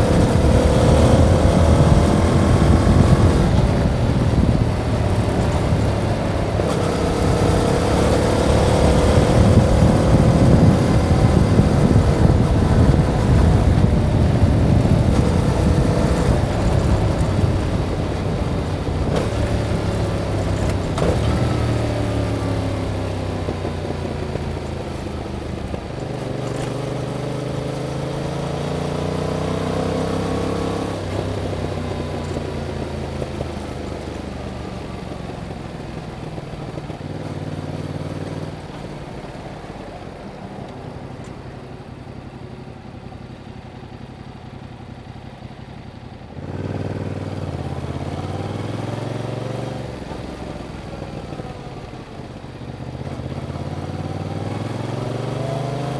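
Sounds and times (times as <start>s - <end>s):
heavy wind noise: 0.0s - 23.6s
motorcycle engine: 0.0s - 55.9s.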